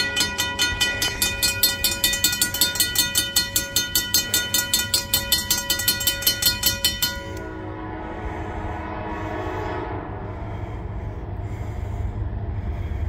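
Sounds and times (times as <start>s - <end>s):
crossing bell ringing: 0.0s - 7.7s
freight train rumbling: 0.0s - 13.0s.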